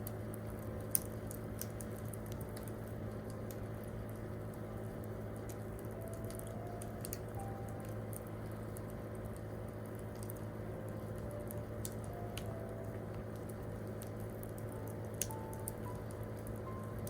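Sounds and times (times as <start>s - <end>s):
campfire crackling and popping: 0.0s - 17.0s
low hum: 0.0s - 17.0s.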